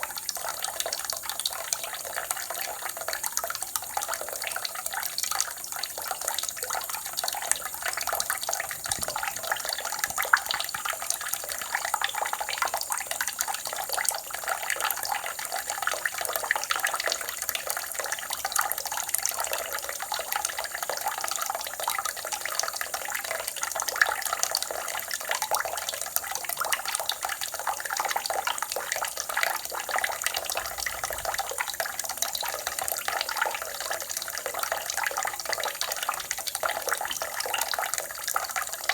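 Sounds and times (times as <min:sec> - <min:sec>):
water running and splashing: 0:00.0 - 0:18.4.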